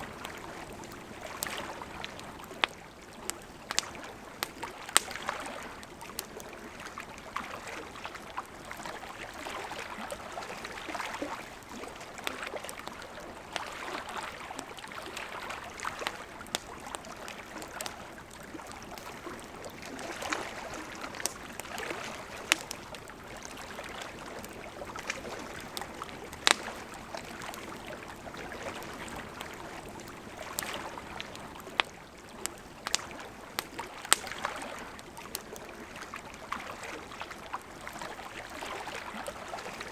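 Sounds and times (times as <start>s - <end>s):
campfire crackling and popping: 0.0s - 39.9s
river flowing: 0.0s - 39.9s.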